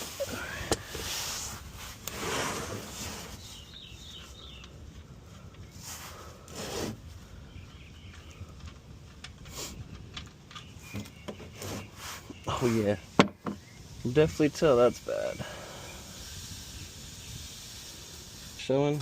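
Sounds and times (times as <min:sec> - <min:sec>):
hands rubbing and scraping parts: 0:00.0 - 0:03.8, 0:08.6 - 0:13.6.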